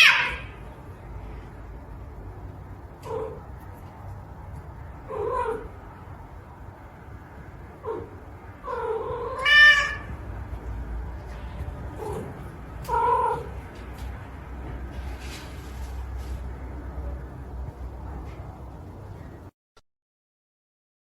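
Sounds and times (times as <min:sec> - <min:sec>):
cat meowing: 0:00.0 - 0:00.6, 0:05.1 - 0:05.7, 0:07.8 - 0:10.2, 0:12.0 - 0:13.6.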